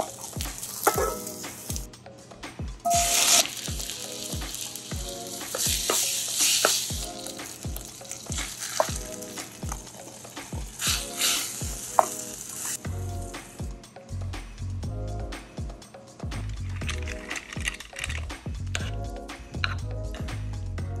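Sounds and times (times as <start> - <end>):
food sizzling in hot oil: 0.0 - 1.9, 2.9 - 13.6
background music with beat: 0.0 - 21.0.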